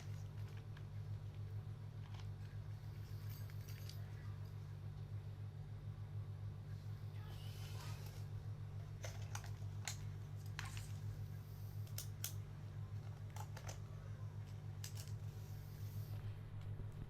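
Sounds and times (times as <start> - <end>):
low electrical hum: 0.0 - 17.0
hands handling objects clicks: 13.0 - 15.3.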